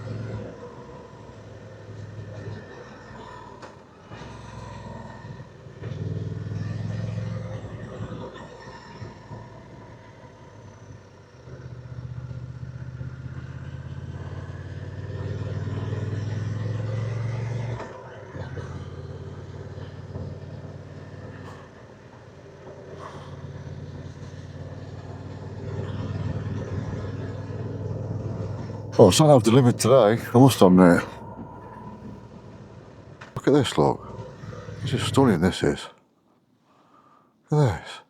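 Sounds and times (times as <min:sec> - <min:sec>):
motorcycle engine running: 0:23.7 - 0:29.0.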